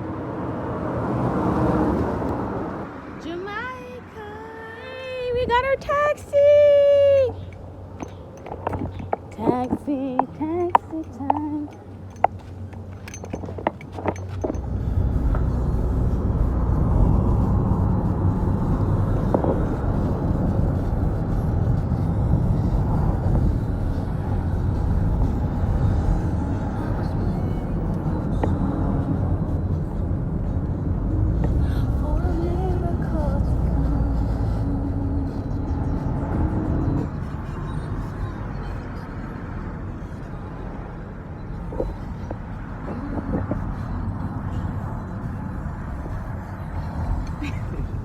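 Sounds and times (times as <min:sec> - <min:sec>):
car engine and road rumble: 0:00.0 - 0:48.0.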